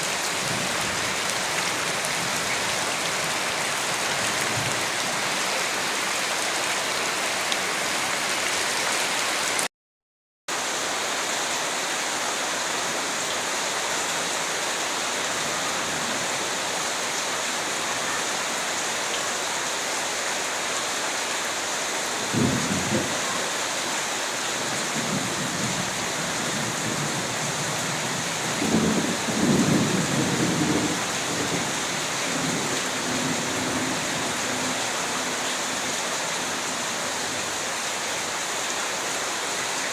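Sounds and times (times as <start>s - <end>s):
dense rainfall hissing: 10.5s - 39.9s.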